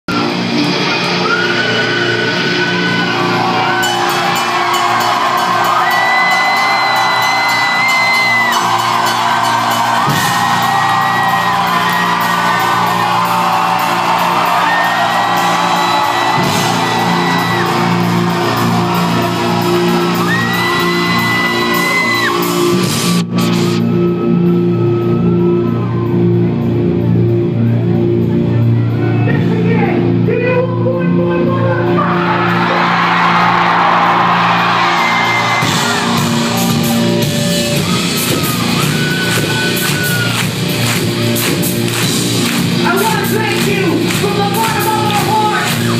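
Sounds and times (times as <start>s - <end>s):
crowd whooping and shouting: 0.1s - 26.8s, 31.9s - 45.9s
live rock music: 0.1s - 45.9s.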